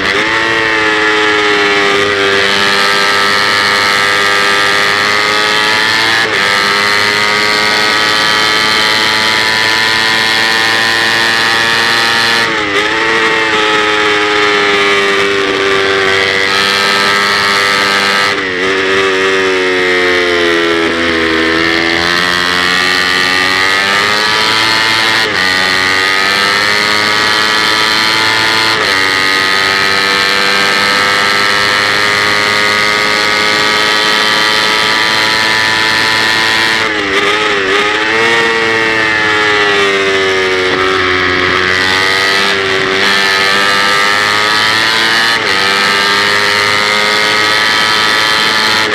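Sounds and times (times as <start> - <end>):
motorcycle engine at high revs: 0.0 - 48.9.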